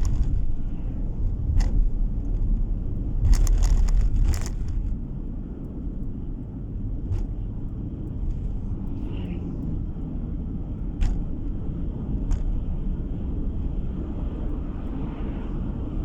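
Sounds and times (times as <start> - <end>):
car road noise rumble: 0.0 - 16.0.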